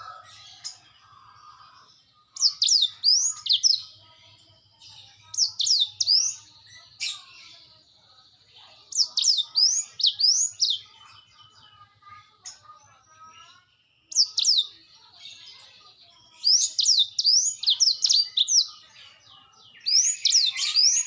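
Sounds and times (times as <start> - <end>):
canary singing whistled notes: 2.4 - 4.0, 5.3 - 7.2, 8.9 - 11.2, 14.1 - 14.8, 16.2 - 18.8, 19.6 - 21.0.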